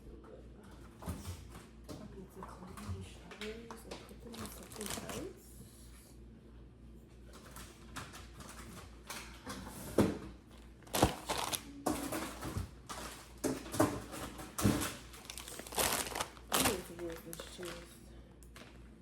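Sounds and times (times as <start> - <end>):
plastic packaging crinkling: 4.3 - 5.3, 10.8 - 12.2, 14.7 - 17.9
containers knocking and clattering: 10.9 - 17.8.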